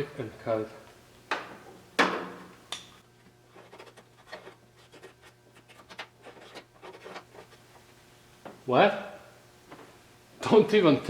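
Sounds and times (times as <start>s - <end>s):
scribe scratching sheet metal: 3.5s - 7.7s.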